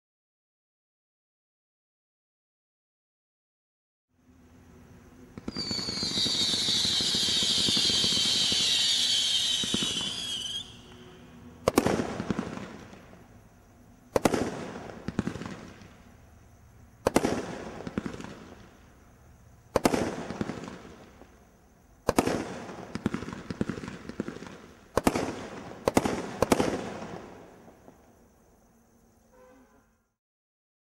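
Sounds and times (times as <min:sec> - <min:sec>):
firework bangs: 0:05.2 - 0:13.4, 0:14.1 - 0:16.1, 0:17.0 - 0:19.0, 0:19.7 - 0:21.4, 0:22.0 - 0:28.0
firework screeching: 0:05.4 - 0:11.5.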